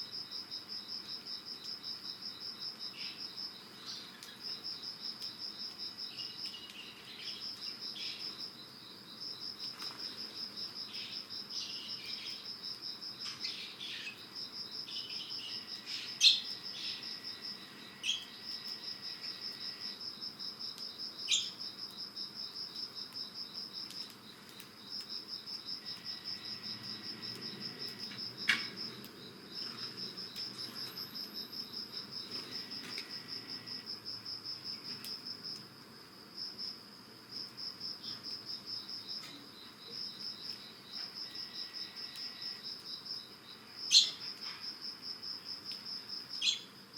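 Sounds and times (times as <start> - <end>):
insect trilling: 13.2 - 20.5, 22.4 - 35.6, 45.9 - 46.7
sparrow chirps: 14.9 - 17.0, 21.3 - 21.6, 43.9 - 44.2, 46.4 - 46.7.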